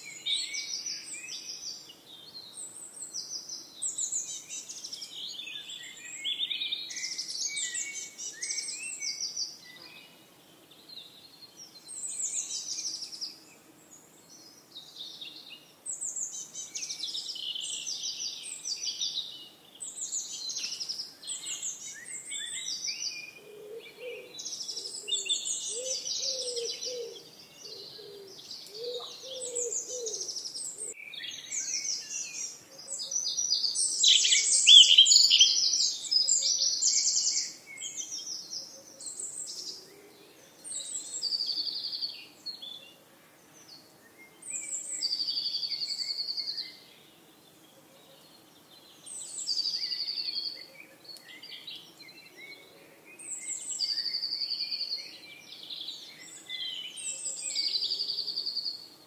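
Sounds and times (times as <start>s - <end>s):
songbirds singing: 0.0s - 59.0s
lower repeated bird call: 20.8s - 38.0s.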